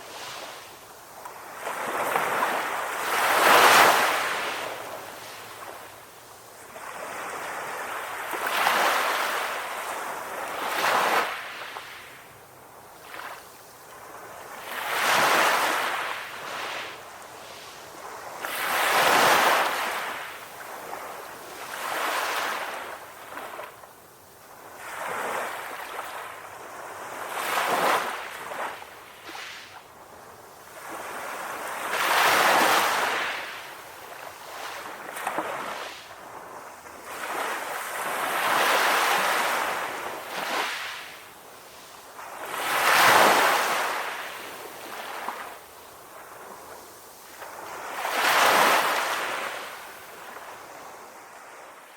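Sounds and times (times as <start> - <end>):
sea waves breaking on a beach: 0.0 - 51.9.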